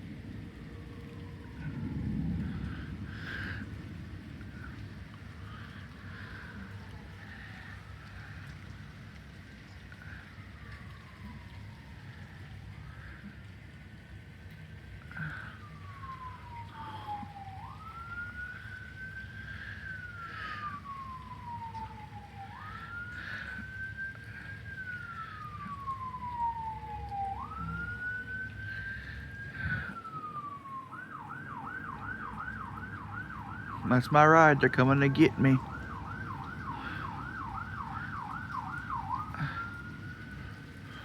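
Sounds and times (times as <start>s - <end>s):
emergency siren wailing: 0.0s - 41.0s.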